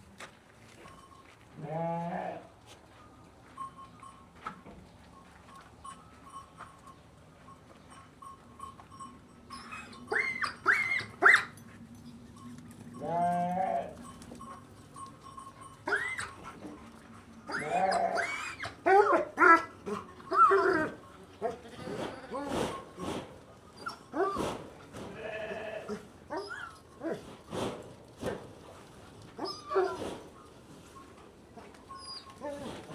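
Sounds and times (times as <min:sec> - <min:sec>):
low drawn-out bleat: 0:01.6 - 0:02.5, 0:13.0 - 0:14.0, 0:25.1 - 0:26.0
lambs bleating: 0:17.5 - 0:18.7, 0:25.1 - 0:26.1.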